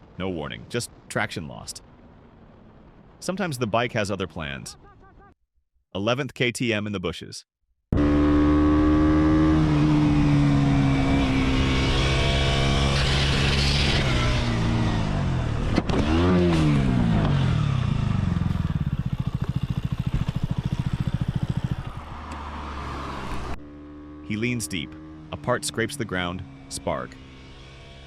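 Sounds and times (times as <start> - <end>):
motorcycle engine running: 16.2 - 28.0.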